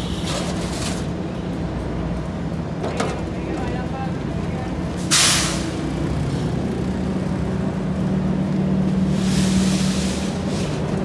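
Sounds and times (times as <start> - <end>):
paving machinery engines humming: 0.0 - 11.0
loud rushing hiss: 9.0 - 10.9.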